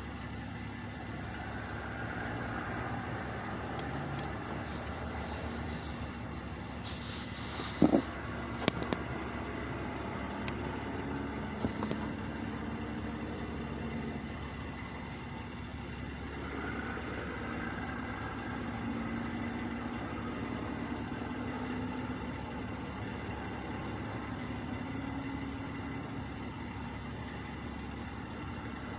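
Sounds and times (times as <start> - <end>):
heavy trucks idling: 0.0 - 28.9
short hissing bursts: 4.2 - 8.9, 11.5 - 12.2.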